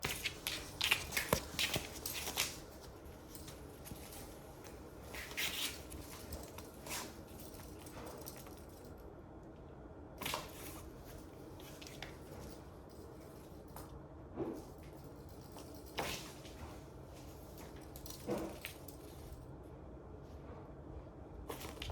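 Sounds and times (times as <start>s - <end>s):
ribbon toy rustling: 0.0s - 8.9s.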